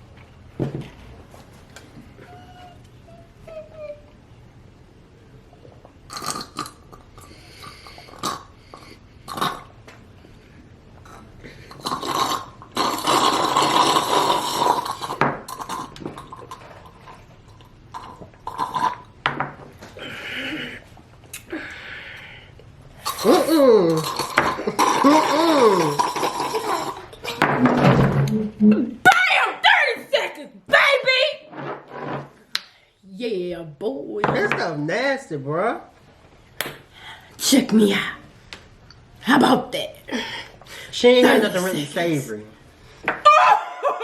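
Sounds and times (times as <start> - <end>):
slurping through straws: 11.1 - 16.8, 23.0 - 27.1.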